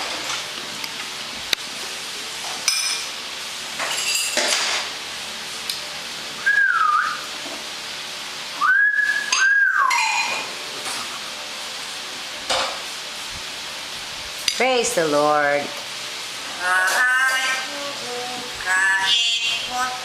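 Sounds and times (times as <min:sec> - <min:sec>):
myna whistling: 0:06.4 - 0:07.2, 0:08.6 - 0:10.1.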